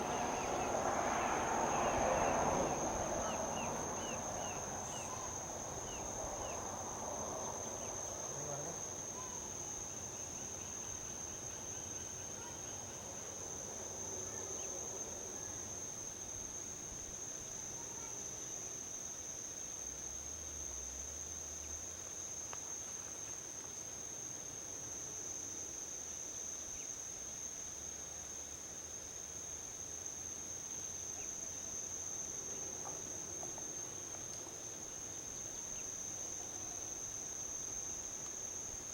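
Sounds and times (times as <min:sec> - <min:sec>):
distant highway traffic: 0:00.0 - 0:09.8, 0:32.2 - 0:38.9
crickets trilling: 0:00.0 - 0:38.9.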